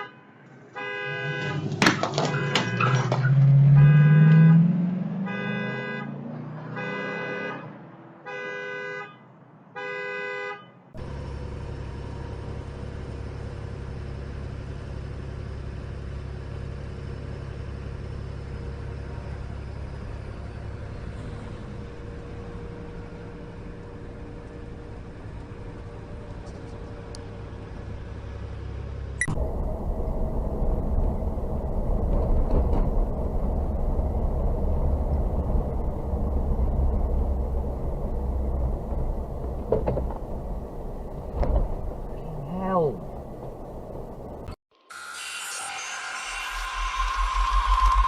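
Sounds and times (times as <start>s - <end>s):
car horn blasts: 0.0s - 10.9s
car driving rumble: 1.1s - 6.8s, 11.0s - 44.6s.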